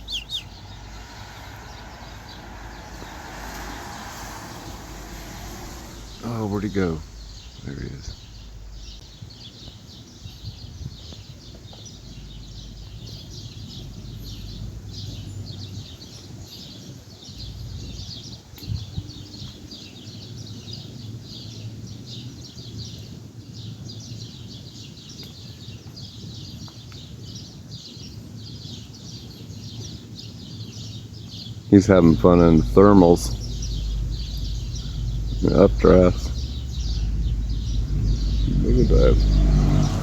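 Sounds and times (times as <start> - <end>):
low background rumble: 0.0 - 16.6, 17.3 - 18.2, 31.7 - 40.0
birds chirping: 0.0 - 19.6, 31.7 - 40.0.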